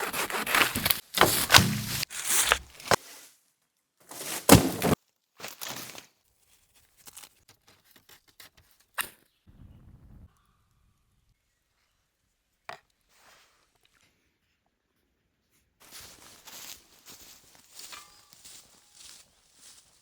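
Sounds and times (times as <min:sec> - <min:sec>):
wood chopping thuds: 0:00.2 - 0:03.0, 0:04.1 - 0:05.0.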